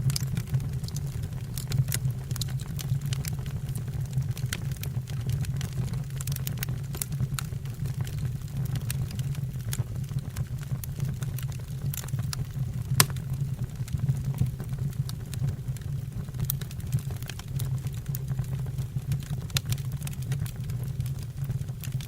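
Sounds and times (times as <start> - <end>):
fire burning: 0.0 - 22.0
logs crackling and popping: 0.0 - 22.0
sharp wood crack: 13.0 - 13.2.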